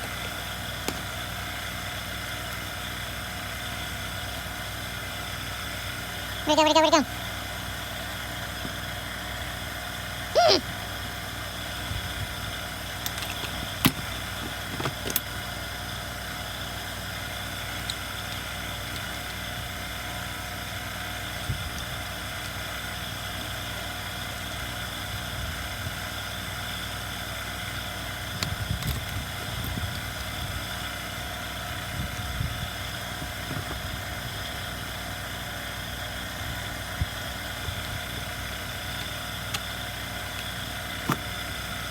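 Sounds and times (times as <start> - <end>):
tools clicking and knocking: 13.0 - 15.3.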